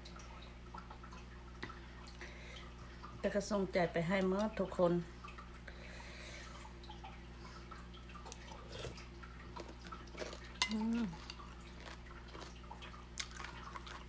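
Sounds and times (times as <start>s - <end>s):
wet chewing: 8.2s - 14.0s.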